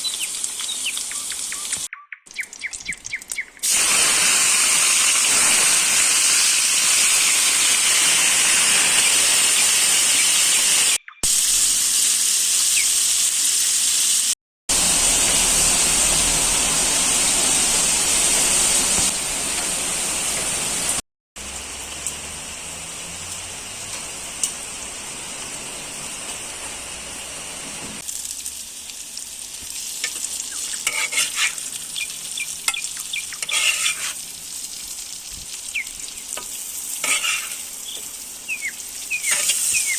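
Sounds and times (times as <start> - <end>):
meat and vegetables sizzling: 0.0 - 1.9, 2.8 - 39.9
utensil scraping a pan: 30.7 - 31.6, 33.4 - 34.2, 37.0 - 37.7.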